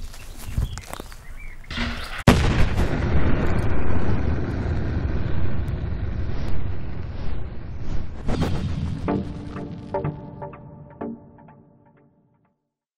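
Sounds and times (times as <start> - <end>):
loud blast: 1.7 - 10.4
dense low rumble: 2.0 - 10.4.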